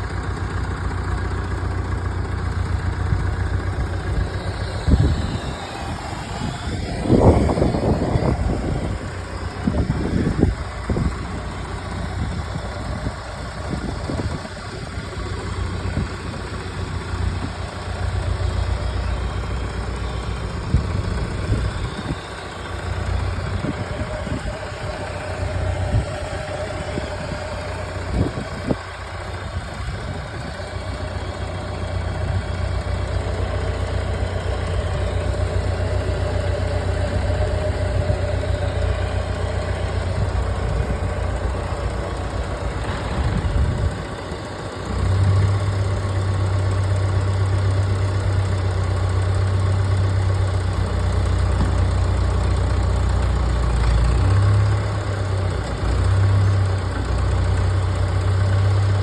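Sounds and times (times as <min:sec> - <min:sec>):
tractor engine running: 0:00.0 - 0:59.0
high whine: 0:02.6 - 0:46.2.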